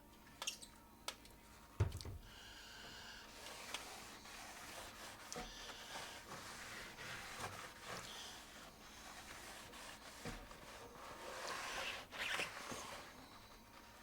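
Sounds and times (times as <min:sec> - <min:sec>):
rag scrubbing wood: 0:03.3 - 0:13.3.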